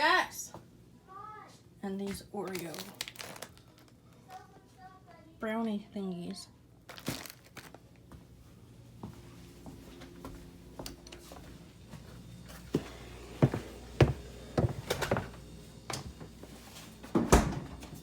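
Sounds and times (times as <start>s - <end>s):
grocery packages knocking and thunking: 6.9s - 7.8s.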